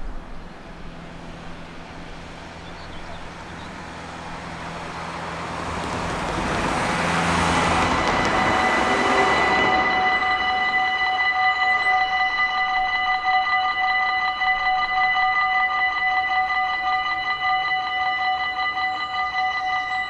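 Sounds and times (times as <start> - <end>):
approaching vehicle engine and tyres: 0.0 - 12.2
road traffic noise: 0.0 - 20.0
steady high tone: 7.2 - 20.0.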